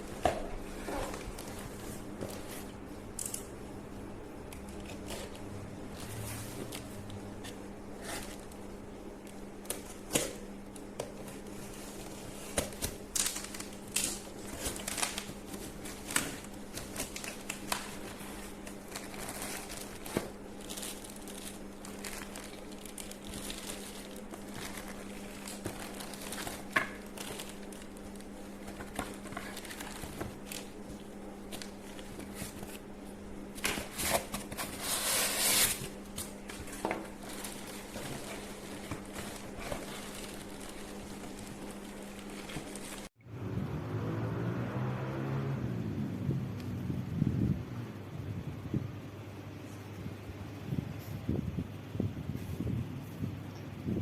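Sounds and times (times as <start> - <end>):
plastic packaging crinkling: 4.6 - 43.1.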